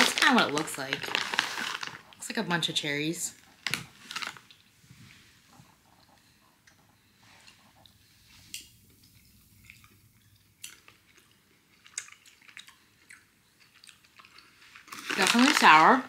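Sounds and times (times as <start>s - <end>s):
chewing candy: 0.0s - 2.3s, 5.9s - 16.0s
wet mouth clicks: 11.8s - 14.4s.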